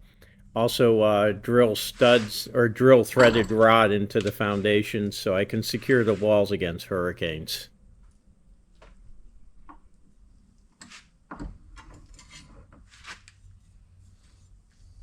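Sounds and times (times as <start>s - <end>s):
objects being handled: 1.8s - 6.6s.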